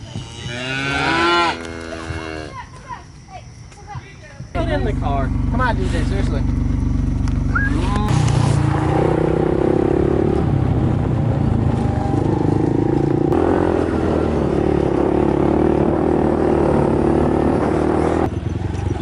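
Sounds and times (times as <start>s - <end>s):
vehicle engine running: 4.4s - 19.0s.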